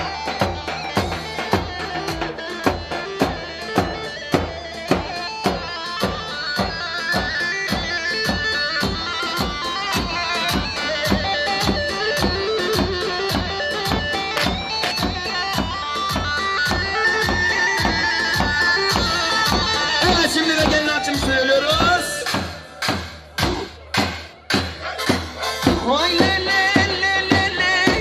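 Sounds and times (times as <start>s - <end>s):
shrill reedy lead melody: 0.0s - 23.8s
fast drum beat: 17.2s - 28.0s.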